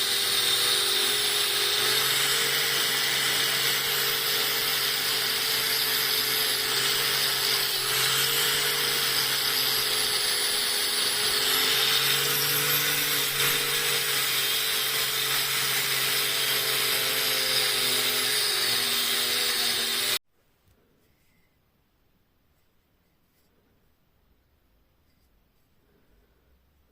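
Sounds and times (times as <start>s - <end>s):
electric power tool motor whine: 0.0s - 20.2s.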